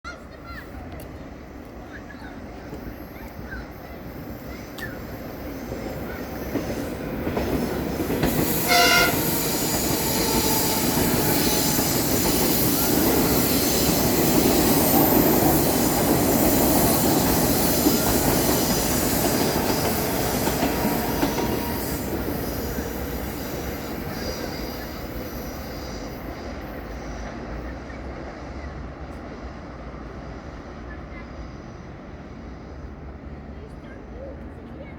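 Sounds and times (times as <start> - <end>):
train running on rails: 0.1 - 34.9
train horn toot: 8.3 - 11.8, 19.8 - 22.2.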